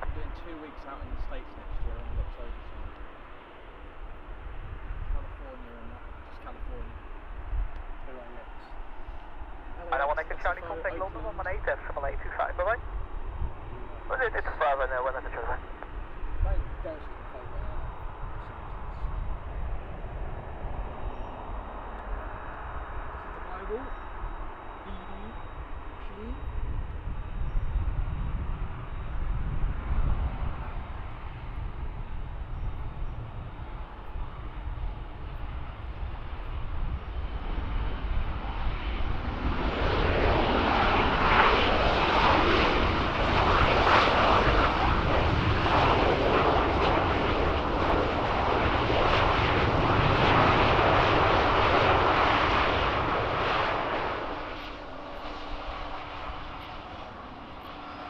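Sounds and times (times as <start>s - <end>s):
jet engines passing: 0.0s - 58.0s.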